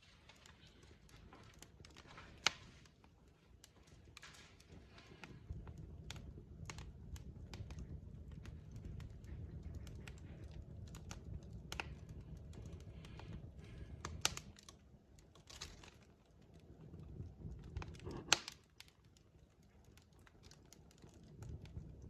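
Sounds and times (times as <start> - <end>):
log fire crackling and popping: 0.0 - 22.0
low rumble of burning: 0.0 - 22.0.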